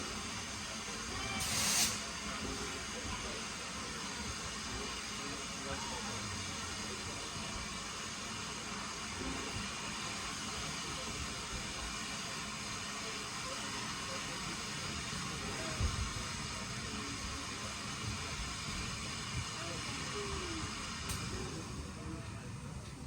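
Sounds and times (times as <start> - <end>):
steam train hiss: 0.0 - 22.8
faint voices: 0.0 - 23.0.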